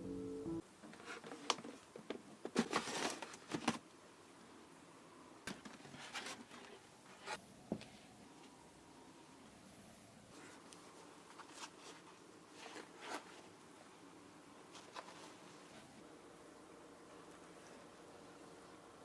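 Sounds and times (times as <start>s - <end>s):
music ending: 0.0s - 0.6s.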